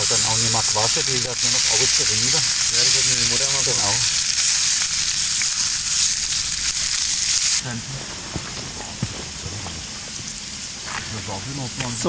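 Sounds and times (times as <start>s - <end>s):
pops in frying fat: 0.0s - 7.6s
potato peels sizzling in lard: 0.0s - 12.0s.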